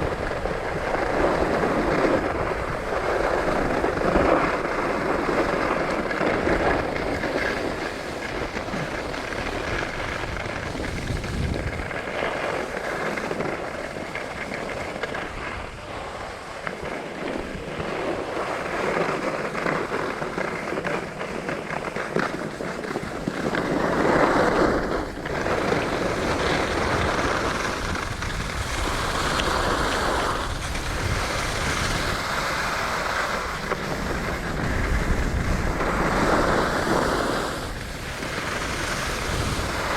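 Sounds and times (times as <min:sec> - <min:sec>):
skis scraping over snow: 0:00.0 - 0:39.9.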